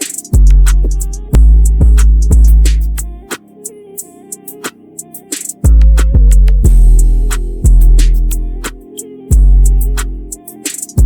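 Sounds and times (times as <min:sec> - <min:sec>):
pitched sampled loop: 0:00.0 - 0:03.4, 0:04.0 - 0:11.0
ticking hi-hats: 0:00.0 - 0:11.0
deep bass notes: 0:00.4 - 0:03.2, 0:05.7 - 0:10.3.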